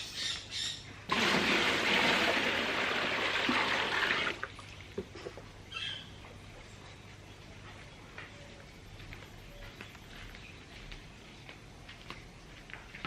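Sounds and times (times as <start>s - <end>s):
water pouring into a tub: 1.1s - 4.9s.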